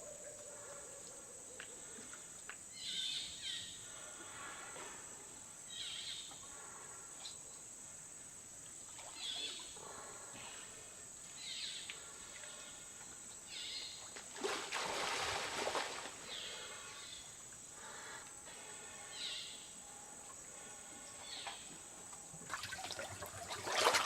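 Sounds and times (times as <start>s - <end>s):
water splashing: 14.1s - 16.4s, 22.3s - 24.0s.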